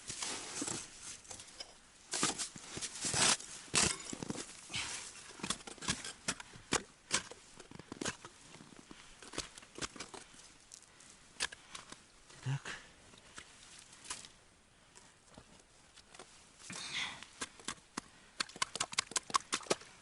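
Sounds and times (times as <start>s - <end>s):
crunches on snow and ice: 0.0s - 20.0s.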